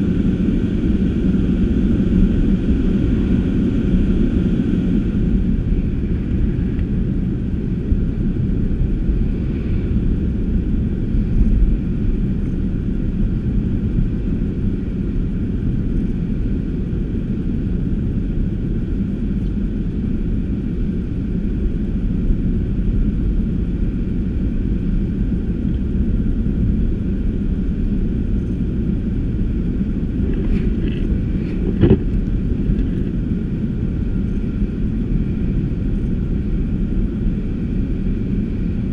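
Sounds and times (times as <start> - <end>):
car engine and tyres rumbling: 0.0 - 38.9.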